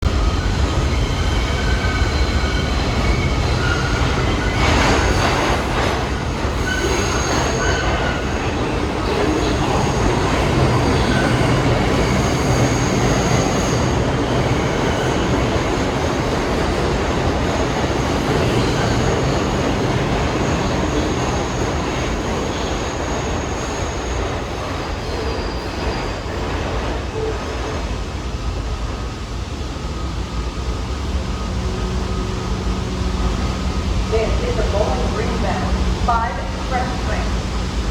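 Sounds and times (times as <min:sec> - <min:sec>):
subway train wheels clattering: 0:00.0 - 0:37.9
high wheel squeals: 0:00.2 - 0:05.6, 0:06.4 - 0:15.6.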